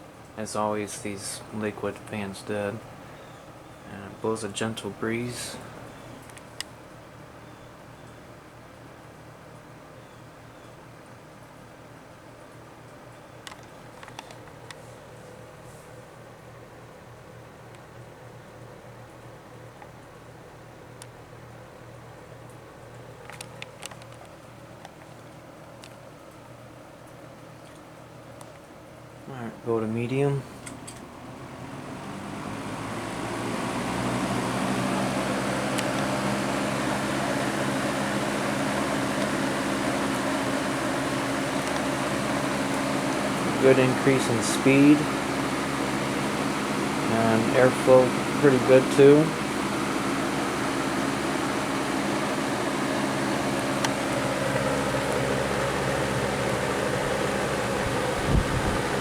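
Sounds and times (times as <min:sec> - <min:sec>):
box fan running: 0:00.0 - 0:59.0
box fan air rushing: 0:30.0 - 0:59.0.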